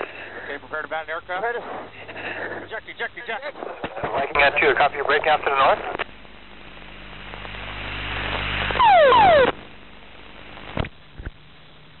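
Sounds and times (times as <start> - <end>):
loud burst: 8.2 - 9.8.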